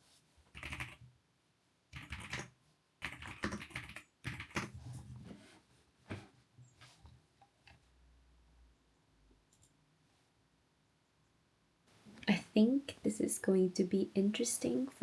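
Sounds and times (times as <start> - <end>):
typing on computer keyboard: 0.5 - 1.0, 1.9 - 4.7.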